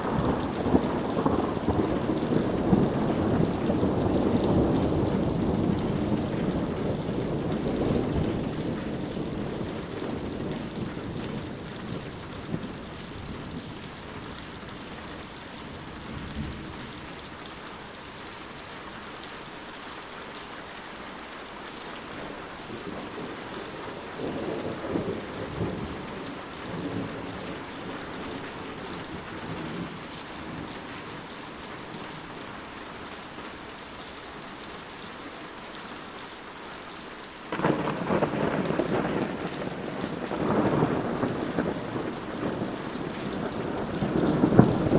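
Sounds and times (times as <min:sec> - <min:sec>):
low rolling thunder: 0:00.0 - 0:17.2, 0:22.2 - 0:32.5, 0:37.5 - 0:44.9
steady rain falling: 0:00.0 - 0:44.9.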